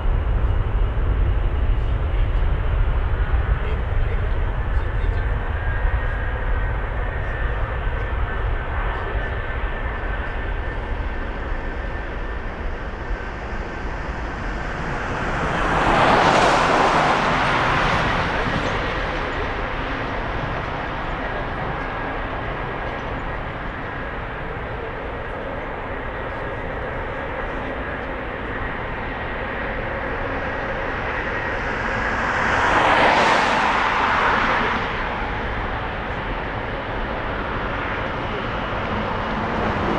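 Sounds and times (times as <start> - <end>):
jet airliner engines droning: 0.0 - 39.9
vehicles passing close: 10.5 - 39.9.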